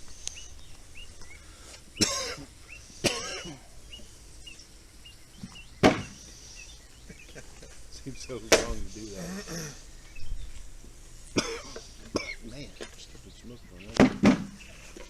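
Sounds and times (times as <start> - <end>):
small birds chirping: 0.0 - 15.0
wooden hive frames knocking: 13.9 - 14.6.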